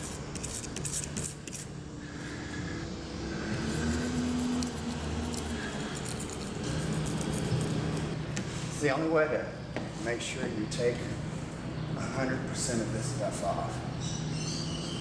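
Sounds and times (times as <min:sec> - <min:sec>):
razor blade scraping paint: 0:00.0 - 0:01.7, 0:03.4 - 0:08.2
vehicle engine hum: 0:01.8 - 0:08.8.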